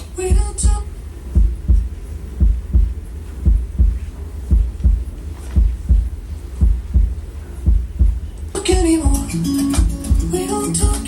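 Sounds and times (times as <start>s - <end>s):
heartbeat double thump: 0.2s - 9.2s.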